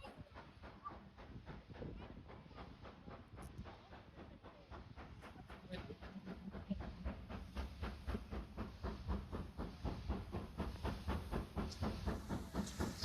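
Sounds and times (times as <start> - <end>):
steam locomotive exhaust chuffing: 0.0 - 13.0.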